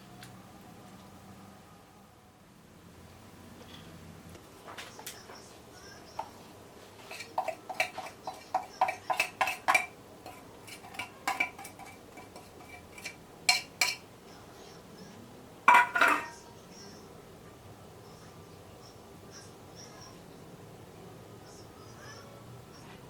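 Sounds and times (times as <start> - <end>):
metal utensil knocking on a pot: 7.1 - 14.0, 15.7 - 16.4.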